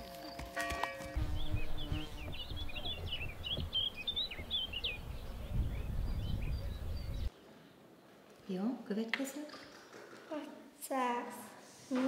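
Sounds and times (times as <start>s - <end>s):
songbirds chirping: 0.0s - 8.7s.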